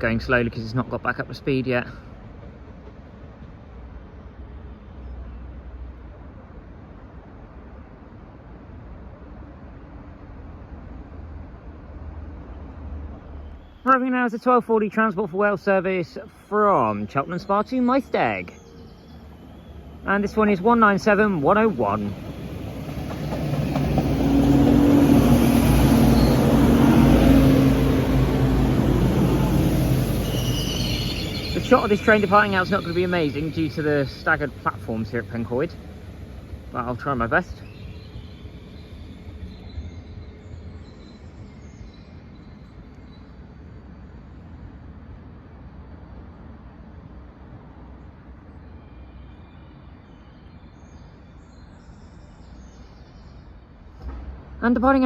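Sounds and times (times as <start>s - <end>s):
diesel train engines droning: 0.0s - 49.2s
faint bird chirps: 29.4s - 35.0s, 36.8s - 44.2s.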